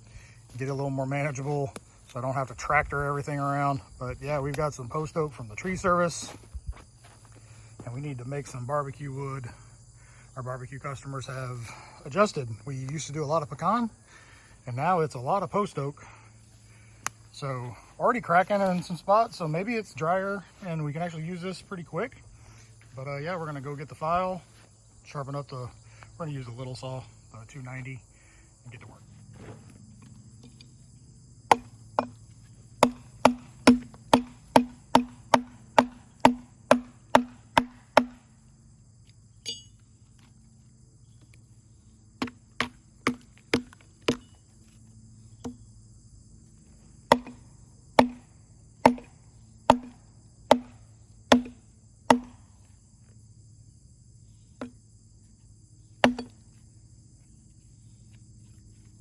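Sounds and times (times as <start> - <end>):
sharp knocks: 31.5 - 32.2, 32.8 - 38.2, 42.2 - 44.3, 47.1 - 47.4, 48.0 - 48.3, 48.9 - 49.1, 49.7 - 52.4, 56.0 - 56.4.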